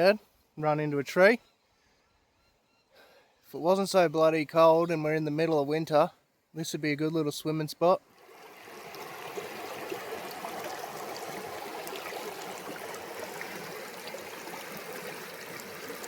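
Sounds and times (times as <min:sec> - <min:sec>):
river water flowing: 0:08.0 - 0:16.0.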